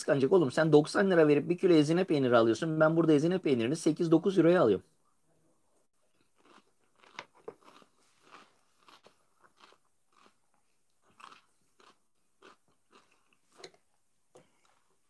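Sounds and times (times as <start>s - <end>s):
person chewing crisp vegetable: 6.0s - 15.0s.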